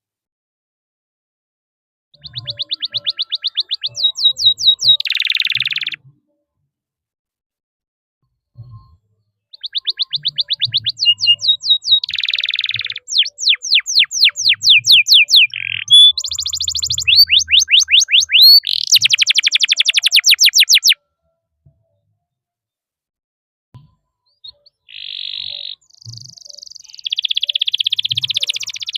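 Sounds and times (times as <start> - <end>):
canary singing trills: 2.2 - 6.0, 9.5 - 21.0, 24.3 - 28.9.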